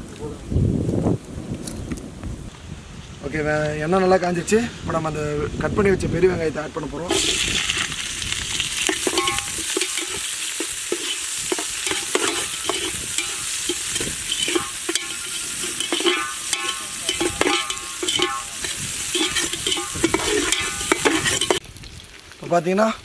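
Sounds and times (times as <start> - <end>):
utensil scraping metal pan: 7.1 - 8.0, 8.7 - 21.6
onions sizzling in oil: 7.1 - 23.0.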